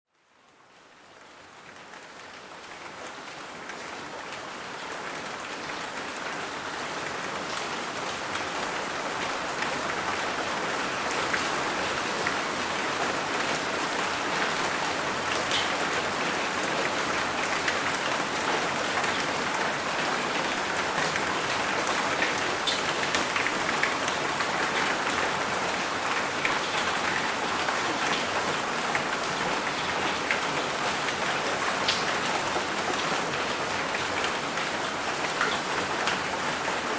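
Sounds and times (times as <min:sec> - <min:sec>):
steady rain hiss: 0:00.2 - 0:36.9
raindrops ticking: 0:22.2 - 0:24.7.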